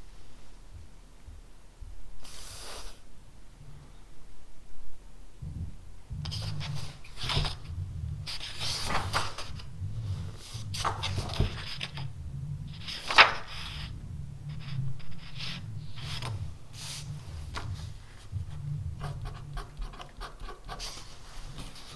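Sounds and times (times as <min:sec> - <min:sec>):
pen scratching on paper: 0:06.1 - 0:21.9.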